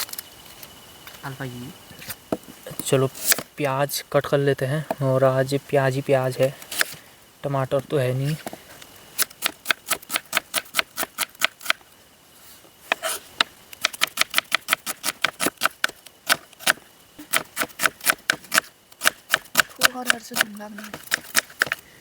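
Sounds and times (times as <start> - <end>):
knife chopping onion: 13.8 - 21.8.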